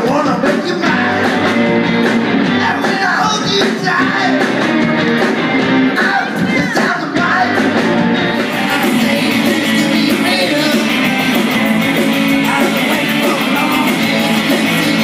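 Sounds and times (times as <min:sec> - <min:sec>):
rock band playing: 0:00.0 - 0:15.0
person singing: 0:05.9 - 0:15.0.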